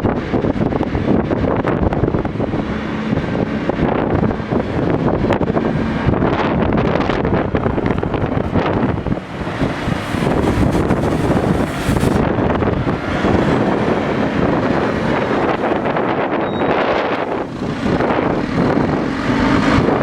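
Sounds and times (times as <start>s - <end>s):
diesel engine running: 0.0s - 20.0s
wind buffeting microphone: 0.0s - 20.0s.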